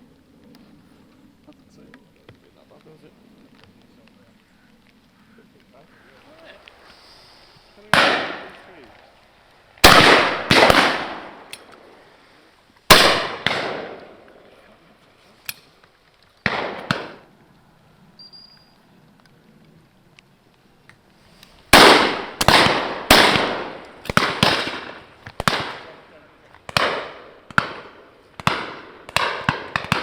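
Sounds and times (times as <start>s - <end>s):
shotgun shots echoing: 7.8s - 8.8s, 9.8s - 11.9s, 12.9s - 14.3s, 16.4s - 17.2s, 21.7s - 30.0s.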